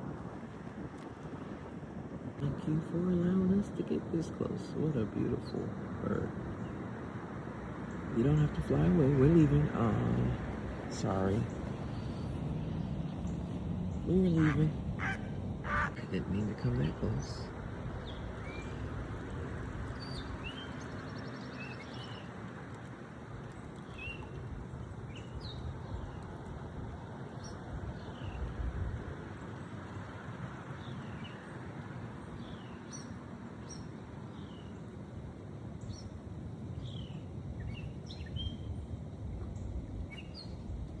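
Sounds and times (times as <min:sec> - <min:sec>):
low rushing noise: 0:00.0 - 0:32.5
birds chirping: 0:02.6 - 0:07.2, 0:07.8 - 0:34.9, 0:35.8 - 0:38.8.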